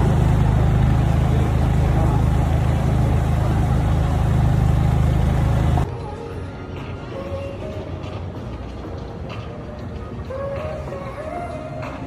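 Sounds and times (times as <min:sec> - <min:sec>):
vehicle engine running: 0:00.0 - 0:05.9.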